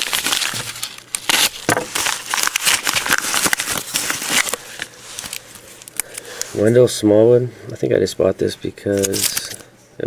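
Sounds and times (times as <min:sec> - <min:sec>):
packaging crinkling and rustling: 0:00.0 - 0:06.6, 0:08.9 - 0:09.7.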